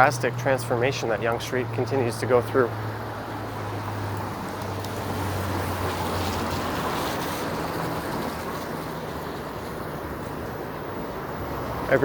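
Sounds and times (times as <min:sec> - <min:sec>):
tyres hissing on wet pavement: 0:03.7 - 0:10.9.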